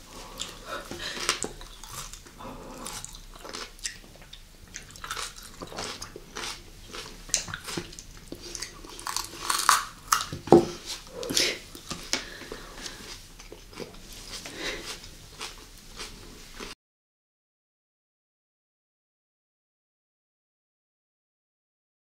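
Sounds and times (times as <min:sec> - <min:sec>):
crunching and chewing pepper: 0:00.2 - 0:16.7.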